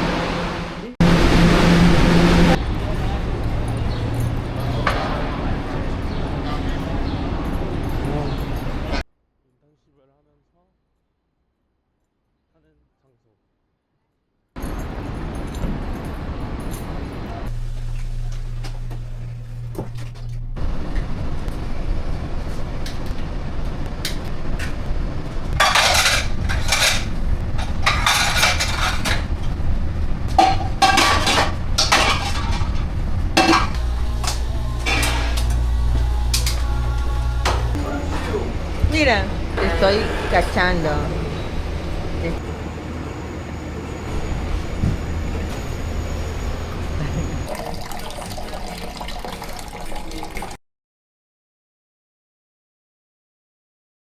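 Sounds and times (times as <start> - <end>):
steady low hum: 17.5 - 44.8
low rumble: 17.5 - 47.4
dishes and utensils clattering: 25.6 - 29.4, 30.3 - 35.7.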